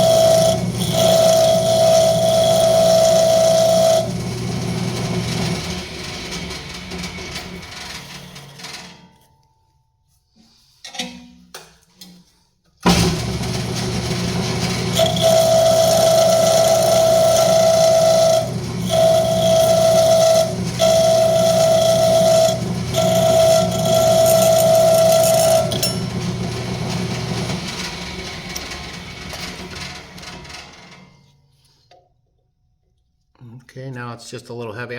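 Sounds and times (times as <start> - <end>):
wood lathe humming: 0.0 - 7.0, 12.9 - 29.7
high-pitched cutting tone: 15.0 - 26.1.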